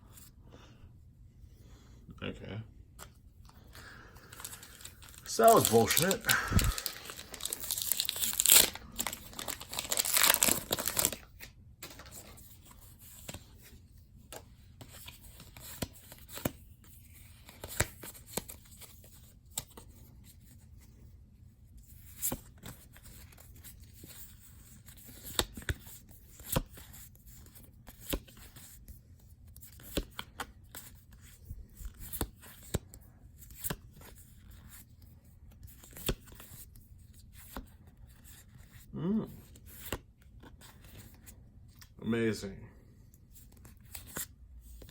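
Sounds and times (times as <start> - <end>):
foil pack tearing open: 4.4 - 11.3
cards flipped with soft clicks: 17.2 - 20.0, 24.9 - 28.7, 29.6 - 35.0, 39.4 - 42.0, 43.1 - 44.9.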